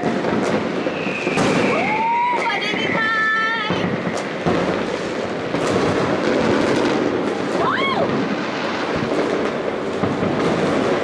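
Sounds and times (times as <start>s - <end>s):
firework whistle: 0.0s - 6.2s, 6.9s - 8.9s
fireworks bangs and crackles: 0.0s - 11.0s.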